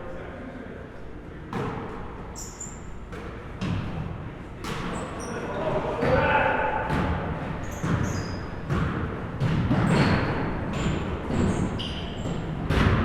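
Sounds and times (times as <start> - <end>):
shoe squeaks: 2.3 - 3.1, 4.9 - 5.7, 7.6 - 8.7, 9.9 - 12.5
basketball bouncing on gym floor: 6.0 - 13.0.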